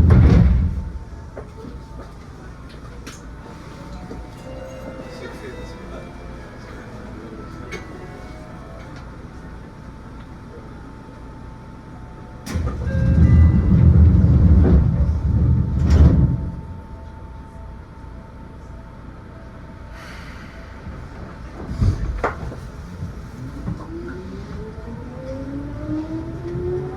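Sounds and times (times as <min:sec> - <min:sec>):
loud low rumble: 0:00.0 - 0:01.9, 0:12.5 - 0:17.5
train rolling noise: 0:00.0 - 0:26.9
faint steady tones: 0:00.7 - 0:14.4.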